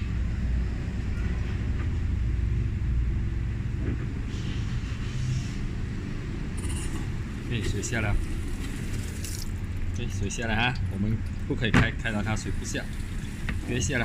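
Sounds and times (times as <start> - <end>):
washing machine draining water: 7.0 - 14.0.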